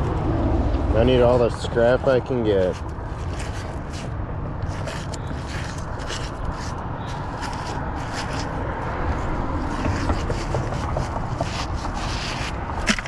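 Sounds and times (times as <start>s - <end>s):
steady low rumble: 0.0s - 12.9s
scrap metal scraping and clicking: 9.2s - 13.0s.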